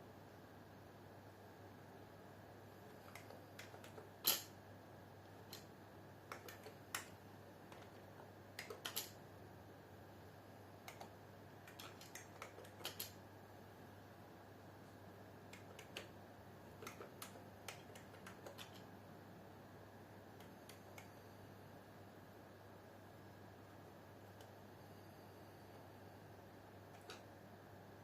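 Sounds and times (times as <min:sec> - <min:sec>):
steady low hum: 0:00.0 - 0:28.0
keyboard key clicks: 0:06.3 - 0:07.1, 0:10.8 - 0:13.1, 0:15.5 - 0:16.1, 0:16.8 - 0:18.8.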